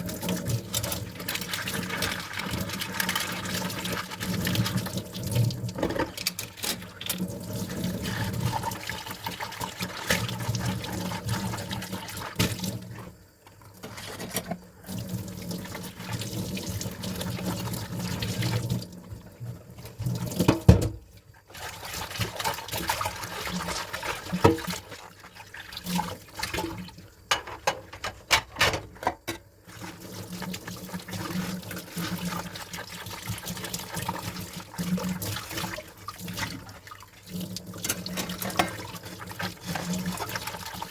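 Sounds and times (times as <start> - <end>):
tap water running into sink: 0.0 - 40.9
dishes clinking and knocking: 27.3 - 29.5.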